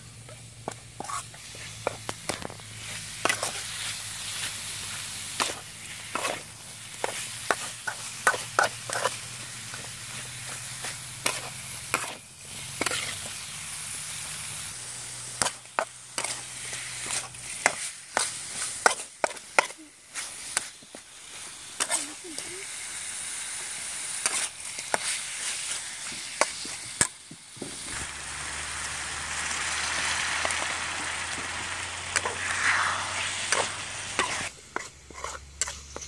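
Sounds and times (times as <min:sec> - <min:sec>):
food sizzling in a wok: 0:00.0 - 0:36.0
metal spatula scraping a wok: 0:00.9 - 0:13.8, 0:15.4 - 0:20.8, 0:24.0 - 0:26.8, 0:32.1 - 0:36.0.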